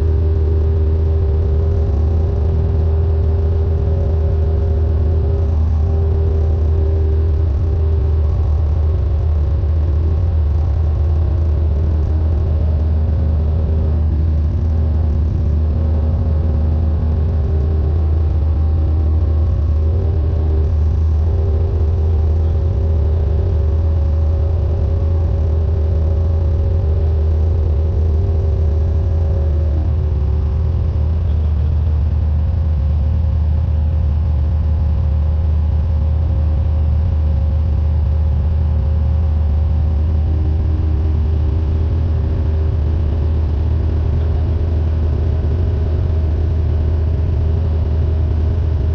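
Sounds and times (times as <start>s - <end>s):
light aircraft engine drone: 0.0s - 48.9s.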